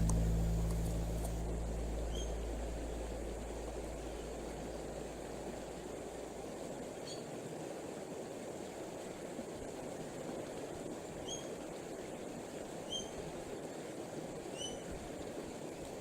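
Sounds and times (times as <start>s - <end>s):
outdoor hiss and rumble: 0.0s - 16.0s
short high bird chirps: 2.0s - 2.4s.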